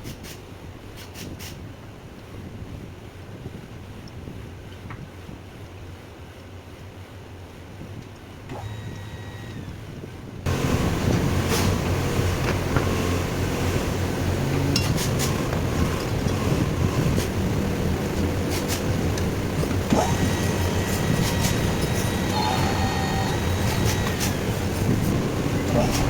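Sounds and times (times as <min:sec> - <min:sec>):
mechanical running noise with hum: 0:01.7 - 0:26.0.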